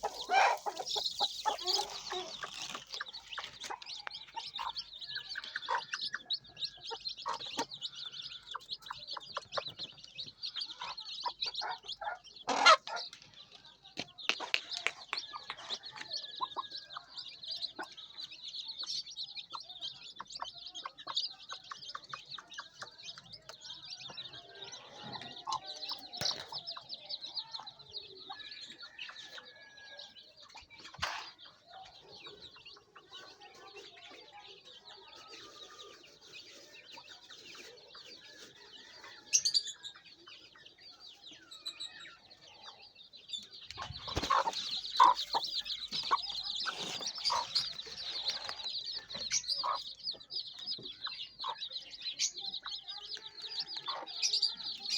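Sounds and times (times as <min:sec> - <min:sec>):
hens clucking: 0:00.0 - 0:07.9, 0:10.7 - 0:13.2, 0:43.6 - 0:50.1
chicks peeping: 0:00.0 - 0:54.9.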